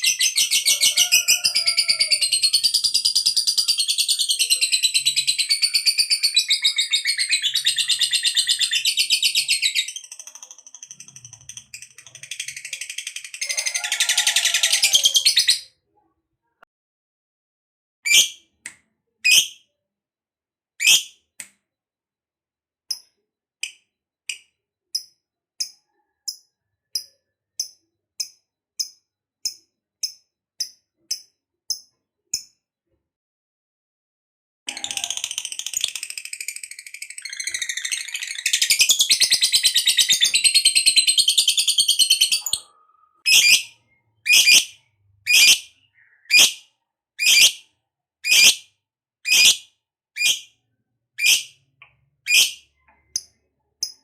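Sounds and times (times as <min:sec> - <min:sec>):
bird chirps: 0:00.0 - 0:15.7, 0:34.7 - 0:48.6, 0:49.3 - 0:49.6, 0:50.2 - 0:54.0.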